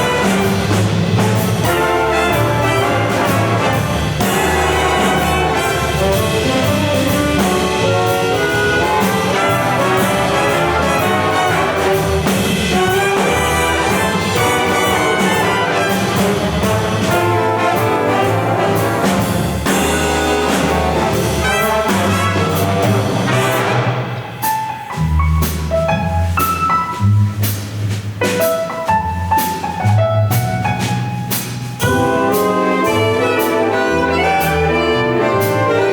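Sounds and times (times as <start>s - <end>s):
school band brass music: 0.0s - 24.5s, 31.8s - 35.9s.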